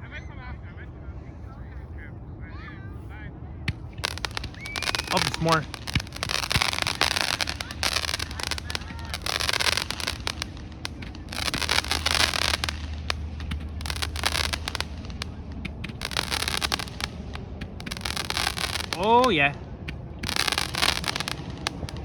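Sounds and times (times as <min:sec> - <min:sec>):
fireworks popping and crackling: 0:03.7 - 0:22.0.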